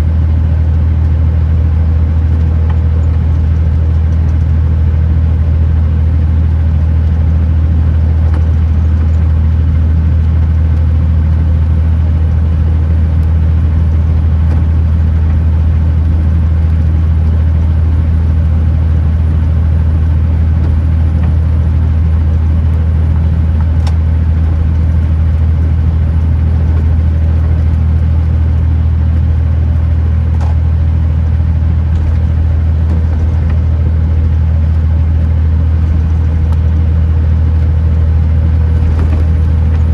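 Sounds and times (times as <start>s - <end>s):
truck diesel engine drone: 0.0s - 39.9s
tyre noise: 23.6s - 39.9s.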